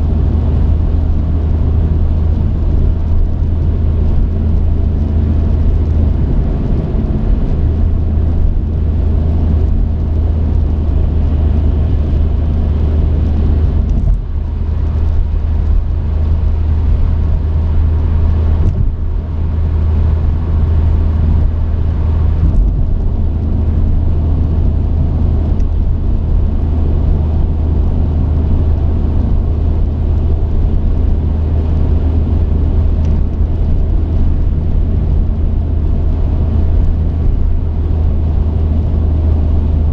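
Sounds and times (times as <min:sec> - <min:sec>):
road noise inside cab: 0:00.0 - 0:39.9
truck engine rumble: 0:00.0 - 0:39.9.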